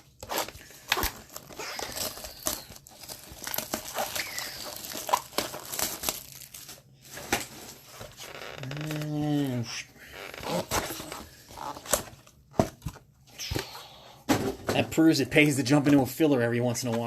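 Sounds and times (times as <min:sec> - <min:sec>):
wrapper crinkling and tearing: 0:00.1 - 0:09.2.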